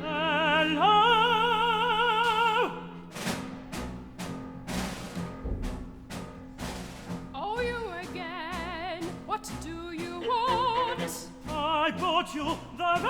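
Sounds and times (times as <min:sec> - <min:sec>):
operatic voice singing: 0:00.0 - 0:03.1, 0:07.4 - 0:13.0.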